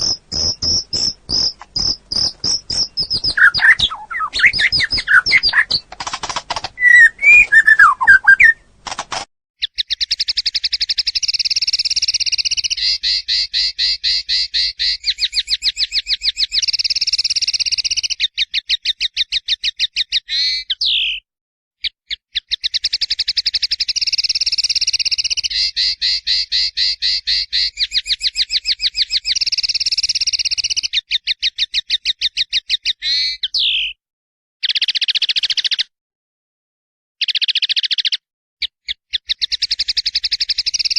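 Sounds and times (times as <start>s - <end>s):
finch singing rapid trills: 0.0s - 8.7s, 38.9s - 40.9s.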